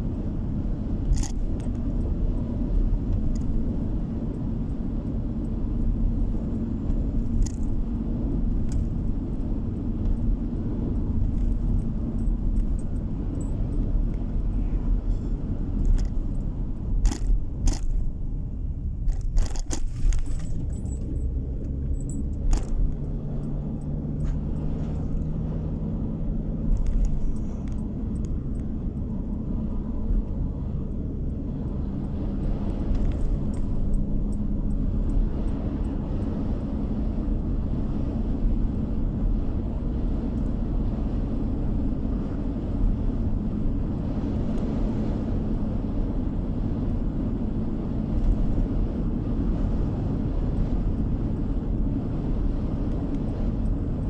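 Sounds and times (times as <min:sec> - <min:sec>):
car road rumble in cabin: 0:00.0 - 0:54.0
faint engine hum: 0:00.0 - 0:54.0.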